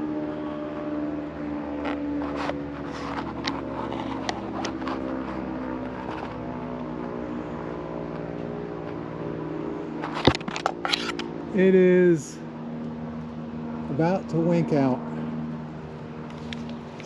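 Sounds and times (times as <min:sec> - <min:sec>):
steady engine drone: 0:00.0 - 0:17.0.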